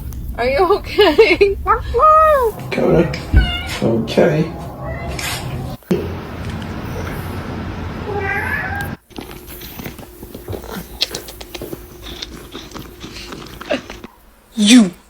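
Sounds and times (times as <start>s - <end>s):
faint hum: 0.0s - 14.4s
cat meowing: 2.0s - 9.0s.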